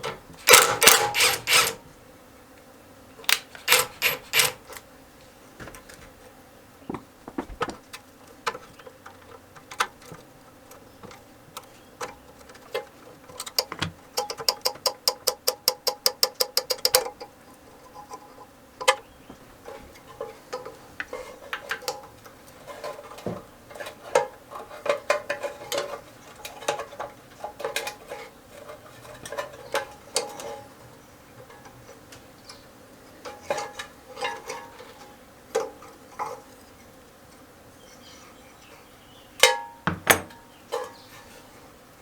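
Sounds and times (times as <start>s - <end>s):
metal tools clinking: 3.6s - 4.8s
loud knocks: 6.9s - 7.9s.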